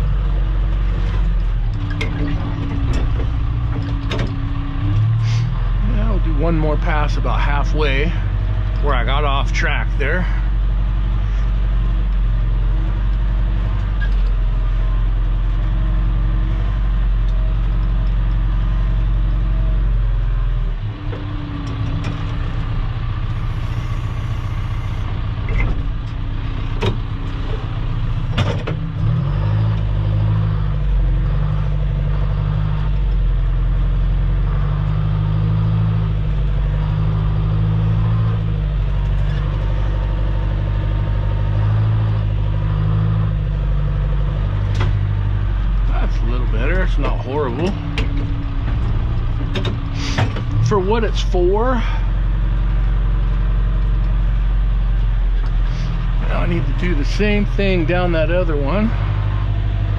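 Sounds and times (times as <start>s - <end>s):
loader engine running: 0.0s - 59.9s.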